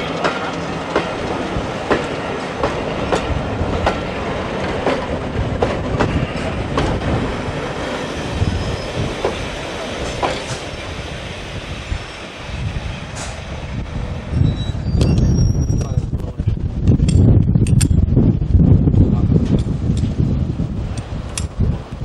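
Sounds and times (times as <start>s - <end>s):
wheels clicking over rail joints: 0.0s - 7.6s, 20.9s - 22.0s
train wheels rumbling on rail: 0.0s - 22.0s.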